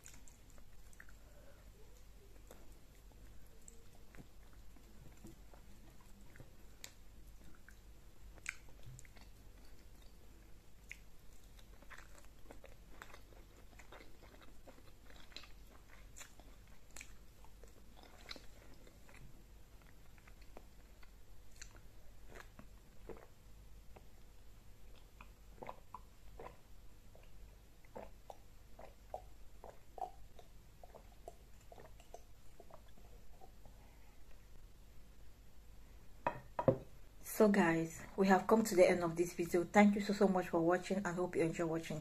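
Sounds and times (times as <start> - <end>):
person chewing: 0.0 - 34.2.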